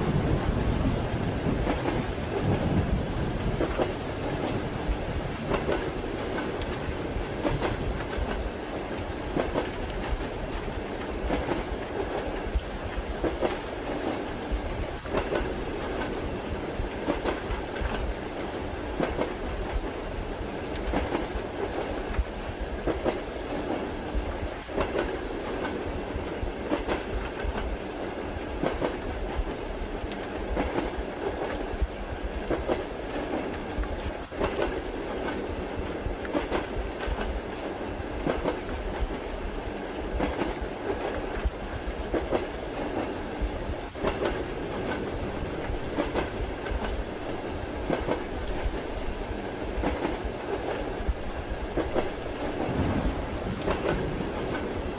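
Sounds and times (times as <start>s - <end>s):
wheels clacking over rail joints: 0.0s - 14.3s, 40.1s - 54.9s
train carriage rumble: 0.0s - 54.9s.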